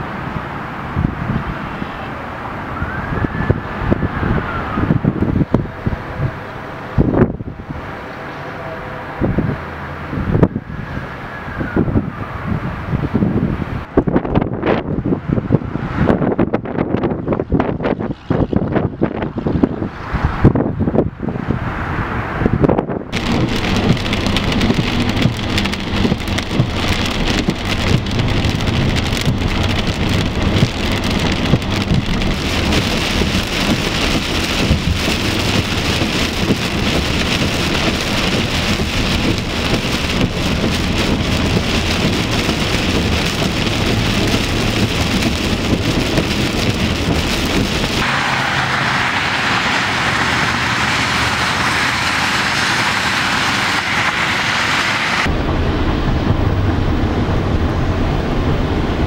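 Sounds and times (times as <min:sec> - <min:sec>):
tyre and road noise: 0:00.0 - 0:59.0
tyre spray from passing traffic: 0:15.0 - 0:59.0
heavy rain hitting a car: 0:23.1 - 0:59.0.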